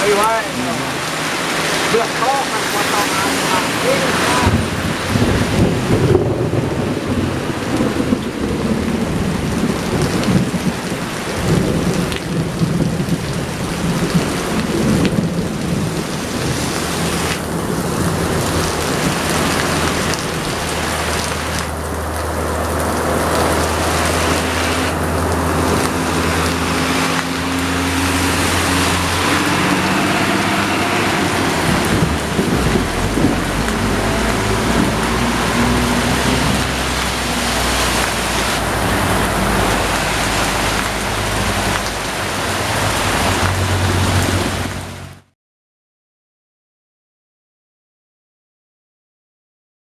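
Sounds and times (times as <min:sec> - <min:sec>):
heavy rain hiss: 0:00.0 - 0:07.7, 0:15.8 - 0:45.0
diesel truck engine labouring: 0:17.5 - 0:45.1.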